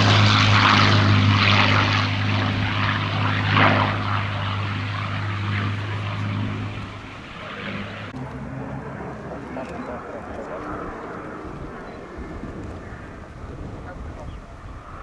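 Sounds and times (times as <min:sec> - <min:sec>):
propeller plane engine in flight: 0:00.0 - 0:15.0.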